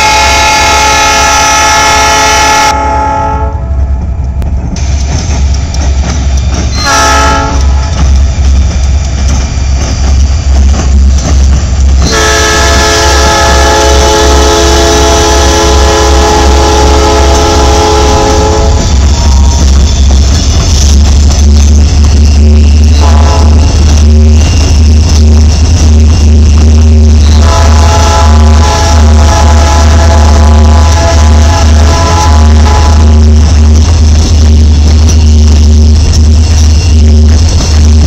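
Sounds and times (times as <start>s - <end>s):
train air horn: 0.0s - 3.7s, 6.8s - 7.8s, 12.0s - 19.6s, 23.0s - 23.7s, 27.3s - 33.2s
diesel locomotive engine rumble: 0.0s - 38.0s.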